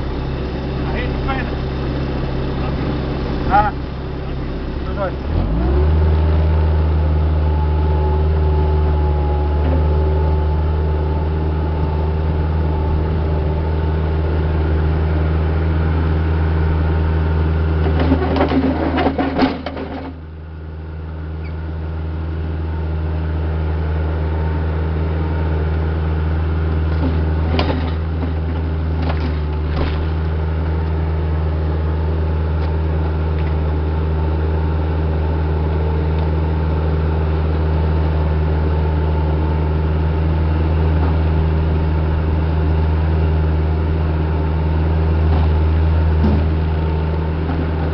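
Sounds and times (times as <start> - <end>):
diesel engine running: 0.0 - 47.9
knocks and clatter: 17.8 - 20.2, 27.0 - 30.2.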